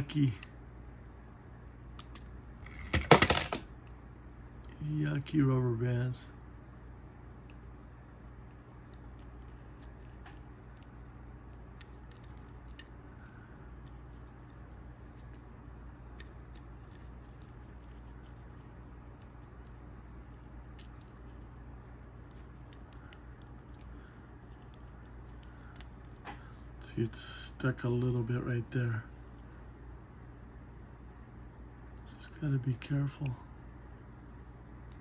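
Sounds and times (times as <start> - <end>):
steady low hum: 0.0 - 35.0
faint clicks and scratches: 8.4 - 26.4.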